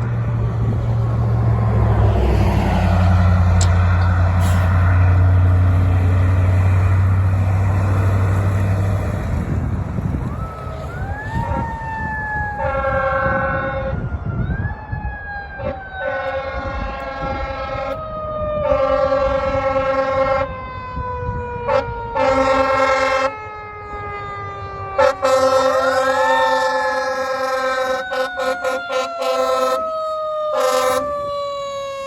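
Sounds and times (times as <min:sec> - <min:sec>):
truck engine rumble: 0:00.0 - 0:32.0
air horn blasts: 0:12.6 - 0:13.9, 0:16.0 - 0:18.0, 0:18.6 - 0:20.5, 0:21.7 - 0:23.3, 0:25.0 - 0:29.9, 0:30.5 - 0:31.2.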